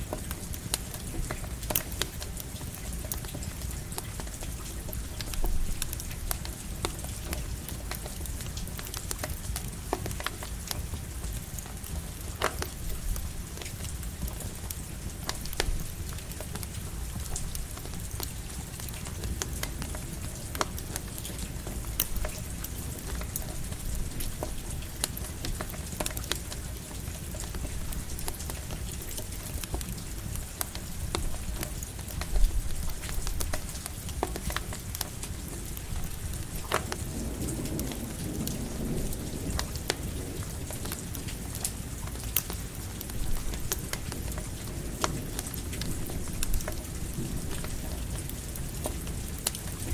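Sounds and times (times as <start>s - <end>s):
campfire crackling and popping: 0.0s - 49.9s
light rain: 0.0s - 49.9s
thunder rumbling: 36.9s - 41.2s.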